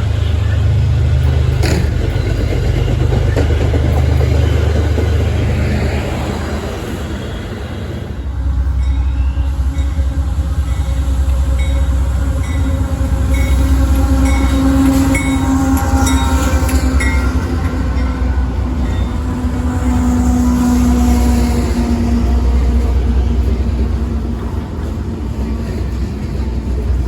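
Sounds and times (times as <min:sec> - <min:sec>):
train rumbling: 0:00.0 - 0:27.0
wheels clacking over rail joints: 0:00.2 - 0:06.9.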